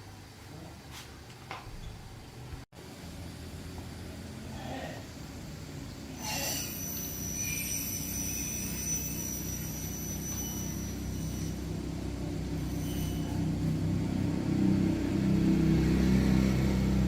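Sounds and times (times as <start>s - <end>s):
thin high whine: 4.6s - 17.0s
engine humming: 10.9s - 17.0s.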